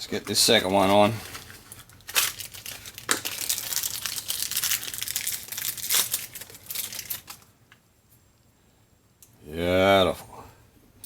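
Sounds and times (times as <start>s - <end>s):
packaging crinkling and tearing: 0.2s - 7.5s.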